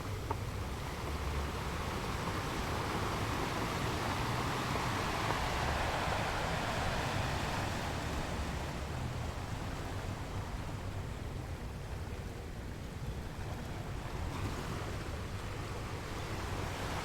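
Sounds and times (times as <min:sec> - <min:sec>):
sea waves washing in: 0:00.7 - 0:11.8.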